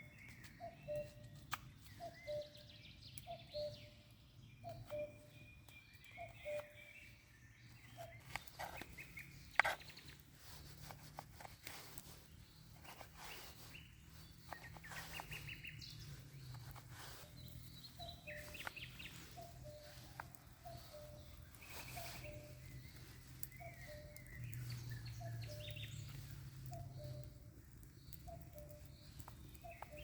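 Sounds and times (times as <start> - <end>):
birds calling faintly: 0.0 - 30.0
light clicks and ticks: 18.4 - 30.0.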